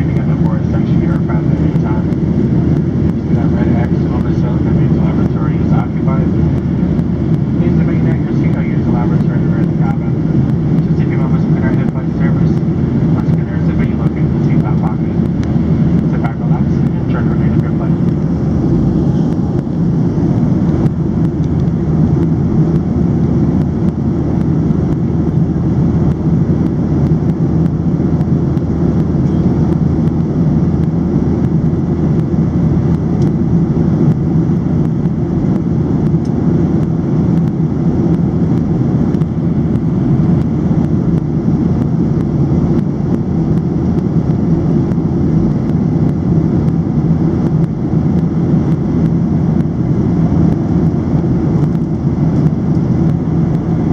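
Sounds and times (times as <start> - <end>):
jet engines roaring: 0.0 - 53.9
rushing air: 15.0 - 53.9.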